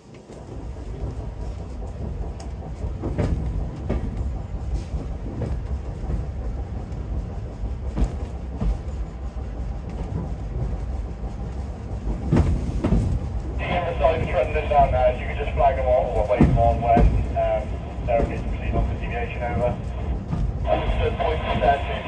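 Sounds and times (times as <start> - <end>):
train wheels on rails: 0.0 - 22.0
wheels knocking on rail joints: 15.9 - 19.0.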